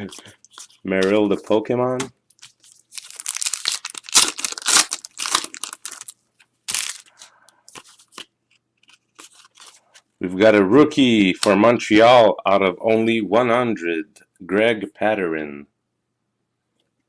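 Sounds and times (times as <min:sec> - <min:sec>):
cards rustling: 0:00.0 - 0:10.1
foil wrapper crinkling and tearing: 0:02.4 - 0:08.2.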